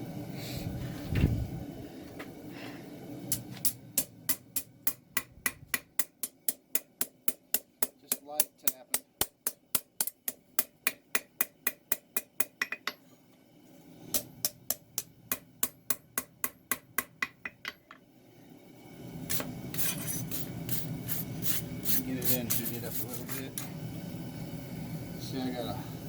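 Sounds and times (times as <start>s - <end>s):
hammer tapping blade on anvil: 3.3s - 13.0s, 14.1s - 18.0s.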